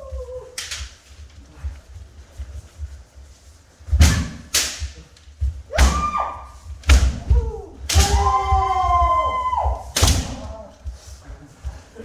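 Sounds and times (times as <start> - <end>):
people shouting: 0.0 - 0.8, 5.7 - 10.8
bamboo swords striking armour: 4.0 - 5.1, 5.7 - 8.8, 9.9 - 10.6.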